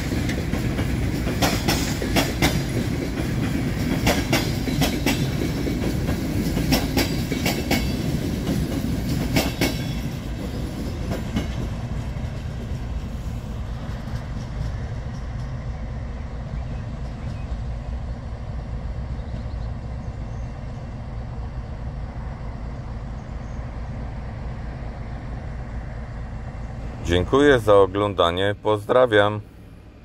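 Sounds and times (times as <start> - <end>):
wheels clicking over rail joints: 0.0 - 13.2
train rumble: 0.0 - 30.0.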